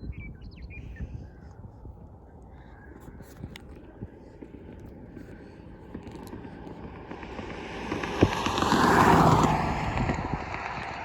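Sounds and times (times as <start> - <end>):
jet engines passing: 3.7 - 11.0.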